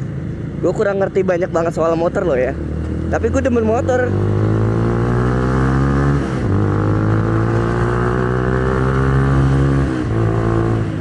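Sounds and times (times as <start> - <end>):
motorcycle engine under throttle: 2.2 - 11.0.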